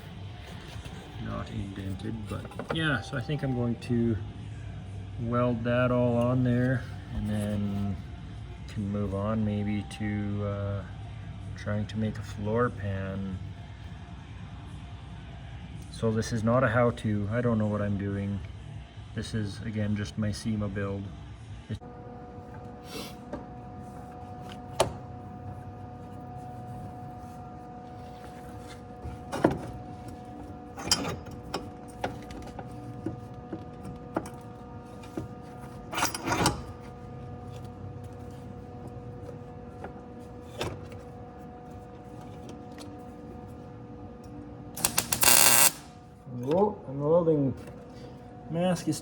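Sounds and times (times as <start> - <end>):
steady hum: 20.8 - 49.0
crackling welding arc: 44.8 - 46.0.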